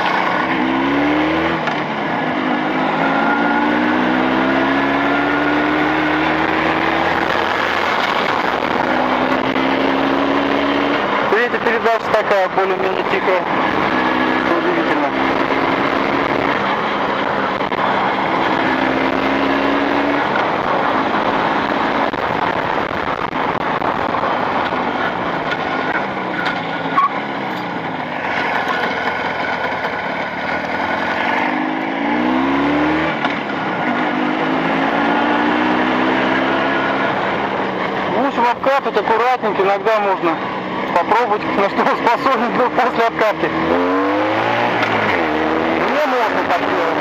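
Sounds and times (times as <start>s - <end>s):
motorcycle engine running: 0.0s - 47.0s
road noise: 0.0s - 47.0s
wind noise: 3.1s - 11.3s, 15.1s - 26.9s.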